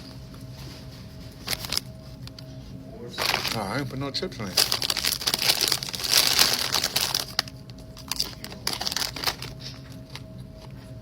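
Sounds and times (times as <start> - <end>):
chip bag crinkling and rustling: 1.4 - 1.9, 3.2 - 3.8, 4.4 - 10.3.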